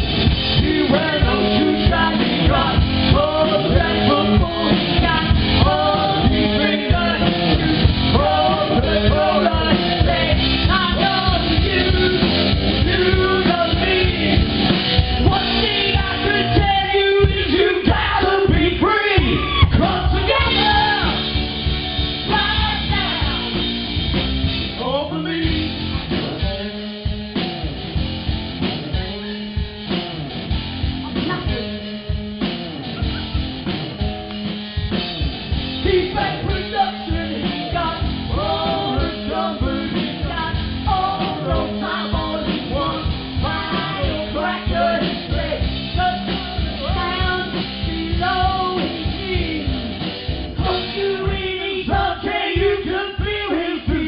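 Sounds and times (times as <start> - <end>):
bass guitar: 0.0 - 54.0
drum kit: 0.0 - 54.0
electric guitar: 0.0 - 54.0
person singing: 0.5 - 14.5, 15.2 - 21.4, 35.8 - 49.9, 50.6 - 54.0.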